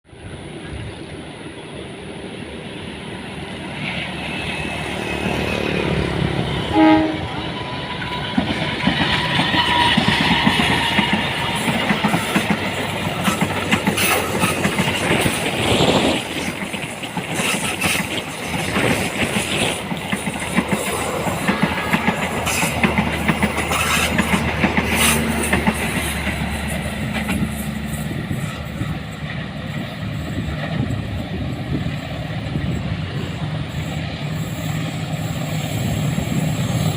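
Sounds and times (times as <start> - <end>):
trains passing at speed: 0.0 - 36.9
train horn blast: 6.5 - 8.3
wheel clacks over rail joints: 8.4 - 27.5.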